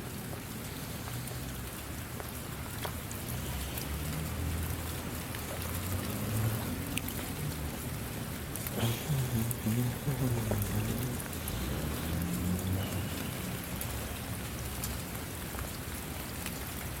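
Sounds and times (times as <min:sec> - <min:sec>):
raindrops ticking: 0:00.0 - 0:17.0
steady rain hiss: 0:00.0 - 0:17.0.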